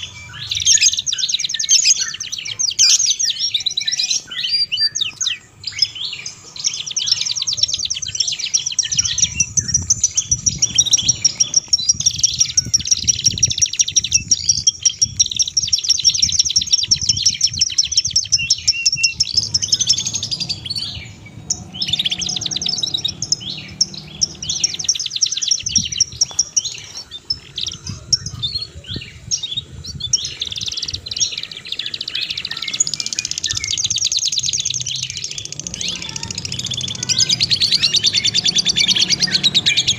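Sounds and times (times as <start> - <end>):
songbird chirping and trilling: 0.0 - 39.9
low rumble: 19.2 - 26.0.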